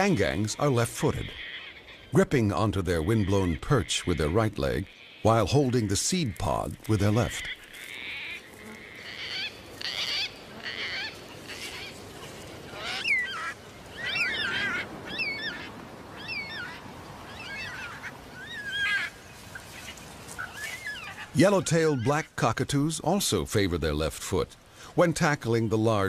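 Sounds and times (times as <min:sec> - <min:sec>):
cockatoos calling: 0:06.4 - 0:22.3.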